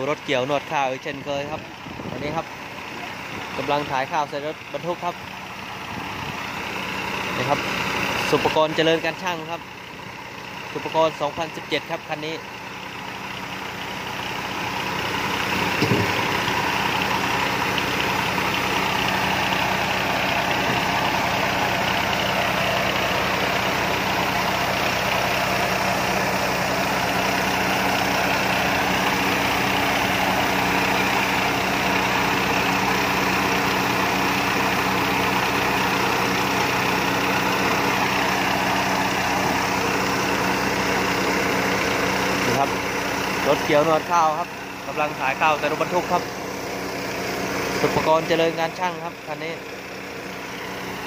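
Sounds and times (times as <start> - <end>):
diesel engine running: 0.0 - 51.0
short knock: 15.8 - 16.2.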